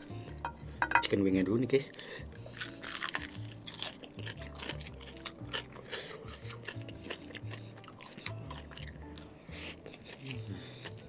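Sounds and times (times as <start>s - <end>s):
background music low notes: 0.0s - 11.0s
wet chewing mouth clicks: 4.0s - 11.0s.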